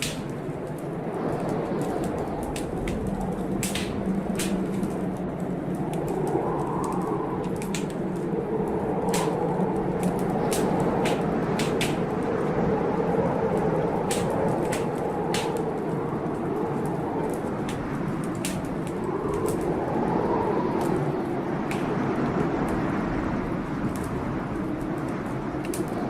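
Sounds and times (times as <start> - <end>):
blizzard wind rushing: 0.0 - 26.0
wood fire crackling: 0.0 - 26.0.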